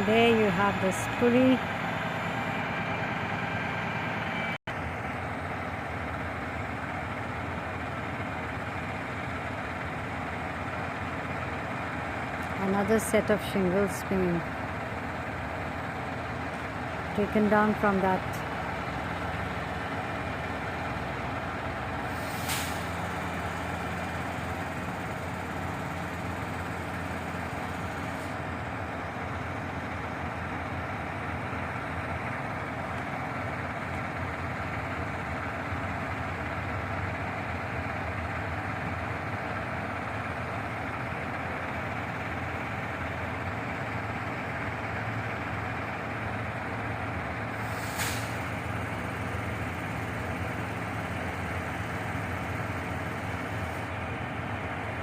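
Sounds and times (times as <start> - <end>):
truck engine running: 0.0 - 55.0
air hisses: 47.6 - 48.4.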